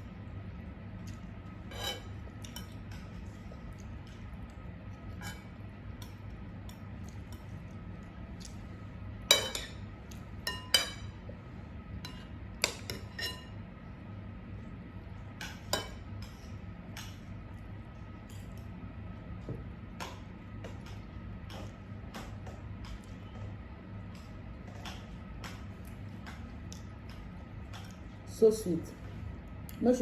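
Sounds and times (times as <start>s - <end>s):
cutlery clinking on dishes: 5.2s - 7.5s, 9.3s - 9.8s, 10.4s - 11.2s, 12.0s - 13.6s.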